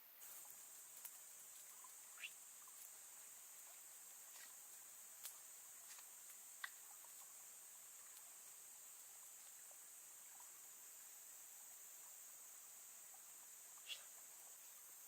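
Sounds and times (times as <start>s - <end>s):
insect chorus drone: 0.0s - 15.0s
faint clicks: 5.2s - 7.3s.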